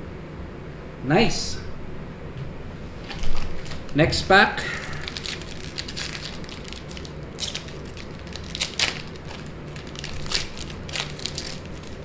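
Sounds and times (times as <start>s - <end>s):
plastic wrapper tearing and crinkling: 3.0s - 4.0s, 4.8s - 12.0s.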